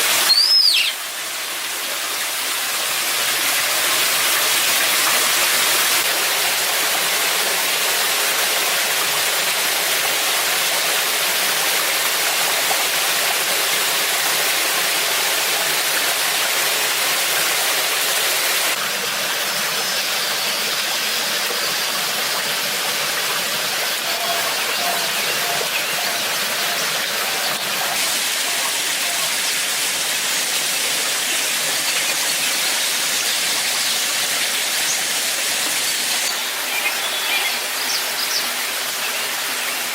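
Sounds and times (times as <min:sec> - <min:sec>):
waterfall rushing: 0:23.5 - 0:39.9.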